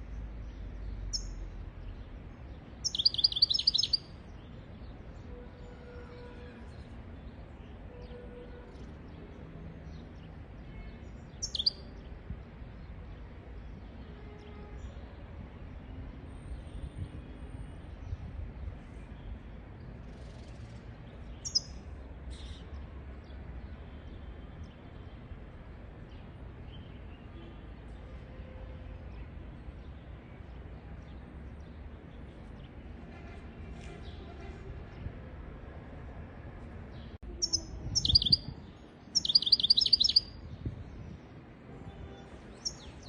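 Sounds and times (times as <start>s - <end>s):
bird high calls and chirps: 1.0s - 1.5s, 2.8s - 4.2s, 11.3s - 11.9s, 21.3s - 22.7s, 37.4s - 41.2s, 42.5s - 43.0s.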